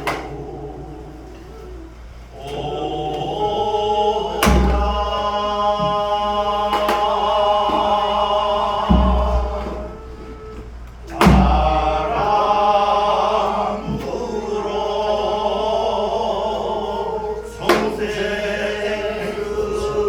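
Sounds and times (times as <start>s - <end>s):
bamboo flute: 0.0s - 20.0s
person singing long wavering notes: 0.0s - 20.0s
low thumps: 4.4s - 12.8s.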